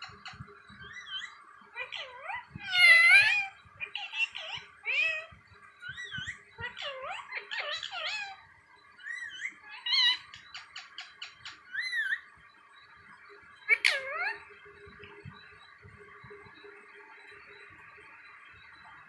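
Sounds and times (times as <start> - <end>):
parrot chattering: 0.2 - 8.4, 9.0 - 12.2, 13.7 - 14.4.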